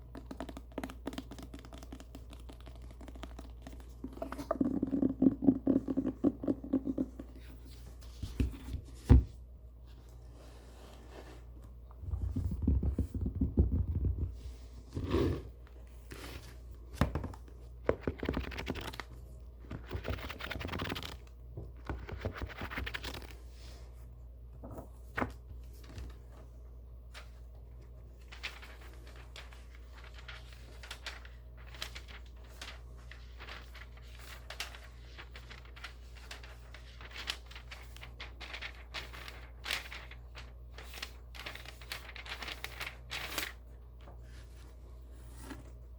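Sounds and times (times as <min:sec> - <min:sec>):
paper pages rustling: 0:00.1 - 0:05.1, 0:15.9 - 0:23.4, 0:24.9 - 0:26.5, 0:27.1 - 0:45.8.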